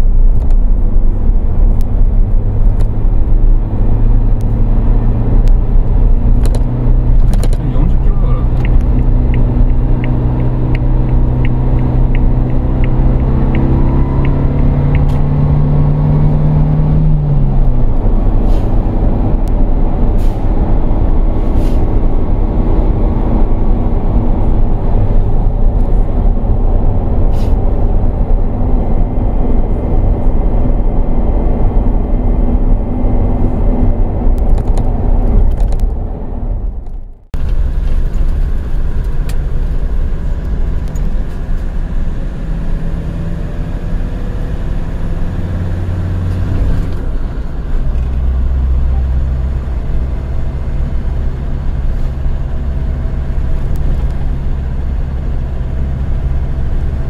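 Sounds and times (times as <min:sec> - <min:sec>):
car engine pulling hard: 0:00.0 - 0:57.0
road and wind noise: 0:00.0 - 0:57.0
turn signal ticking: 0:05.4 - 0:15.7.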